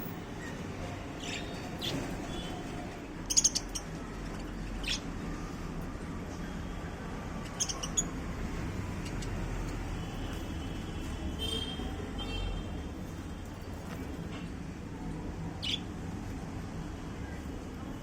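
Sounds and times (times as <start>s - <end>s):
budgerigars chirping and squawking: 7.5s - 8.2s.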